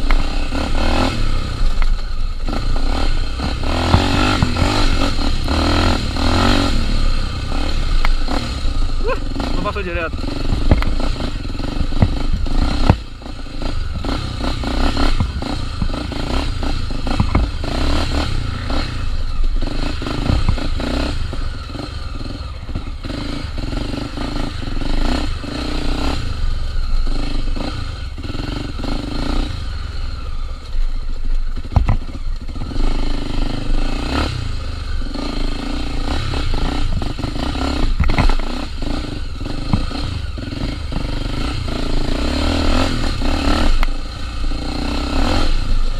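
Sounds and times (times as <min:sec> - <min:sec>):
motorcycle engine running: 0:00.0 - 0:45.9
bike knocking and clattering: 0:01.7 - 0:05.5, 0:09.6 - 0:17.9, 0:19.4 - 0:21.0, 0:31.3 - 0:32.9, 0:36.4 - 0:38.6, 0:39.4 - 0:41.4.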